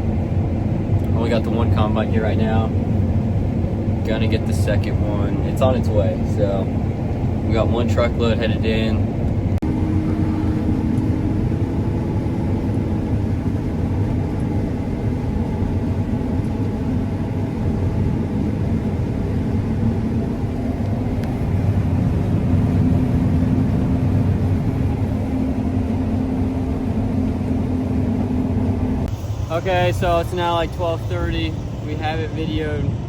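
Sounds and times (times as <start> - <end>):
combine harvester droning: 0.0 - 33.0.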